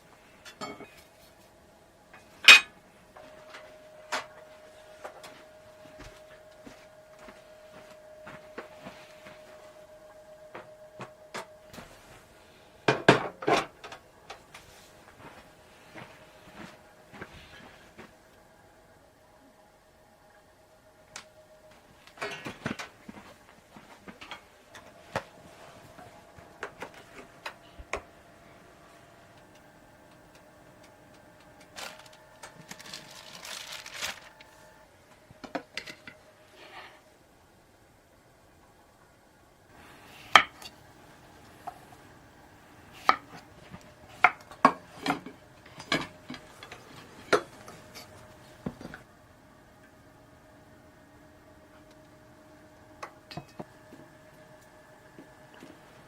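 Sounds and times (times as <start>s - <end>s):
dishes and utensils clinking: 0.4s - 1.2s, 2.2s - 2.8s, 22.2s - 23.3s, 40.1s - 40.8s, 42.9s - 49.0s, 53.3s - 53.7s.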